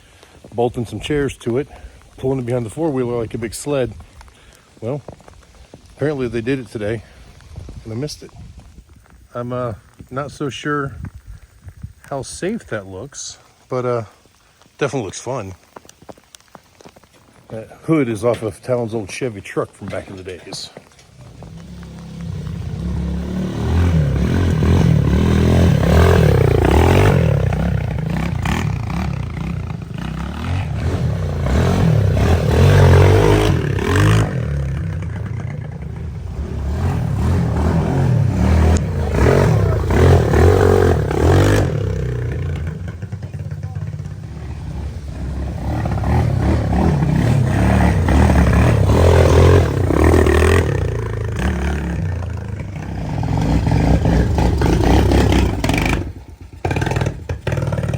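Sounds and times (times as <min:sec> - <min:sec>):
off-road vehicle engine revving: 0:21.0 - 0:57.9.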